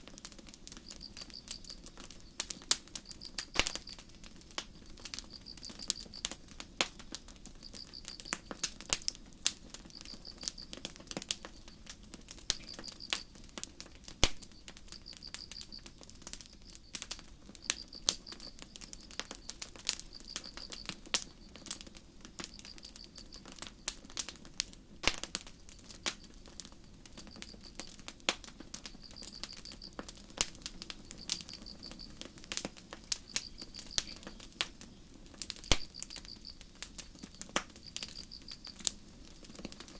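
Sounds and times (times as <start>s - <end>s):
campfire crackling and popping: 0.0s - 39.9s
low steady hiss: 0.0s - 39.9s
crickets chirping: 0.7s - 6.4s, 7.1s - 8.6s, 9.8s - 10.8s, 11.4s - 13.4s, 14.4s - 23.9s, 25.5s - 28.0s, 28.8s - 39.9s.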